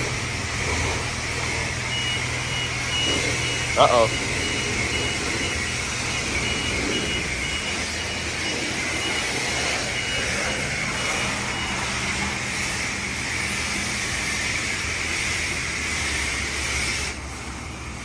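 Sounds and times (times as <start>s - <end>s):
mechanical rushing noise: 0.0s - 18.0s
short high beep: 1.9s - 12.2s.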